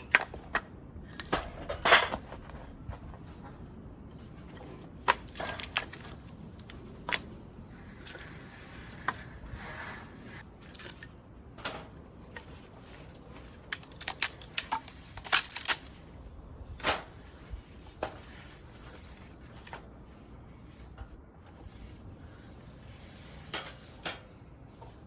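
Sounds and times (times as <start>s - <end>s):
metal stand parts clicking: 13.6s - 16.0s.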